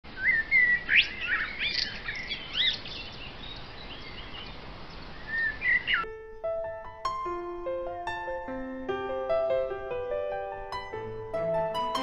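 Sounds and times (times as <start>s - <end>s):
songbirds chirping and whistling: 0.1s - 6.4s.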